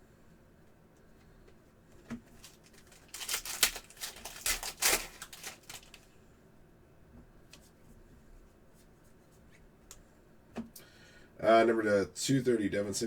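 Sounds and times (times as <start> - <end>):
foil wrapper tearing and crinkling: 2.3 - 6.1.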